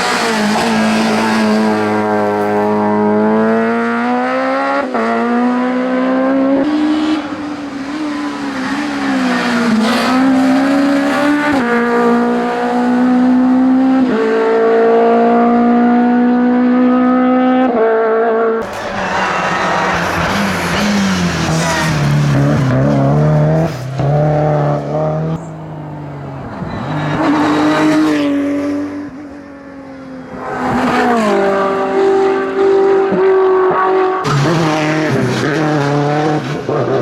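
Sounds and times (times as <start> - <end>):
race car engine revving: 0.0 - 29.4.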